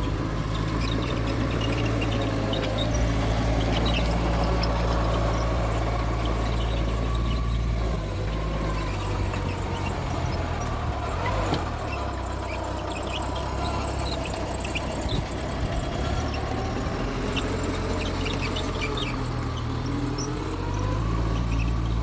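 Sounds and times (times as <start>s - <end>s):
bulldozer diesel engine running: 0.0s - 22.0s
short high squeaks: 0.0s - 22.0s.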